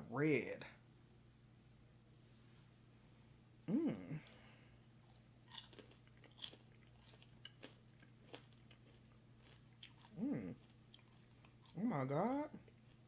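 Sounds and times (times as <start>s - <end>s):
vocal murmur: 3.7s - 4.3s, 10.1s - 10.6s
person crunching popcorn: 5.0s - 11.9s.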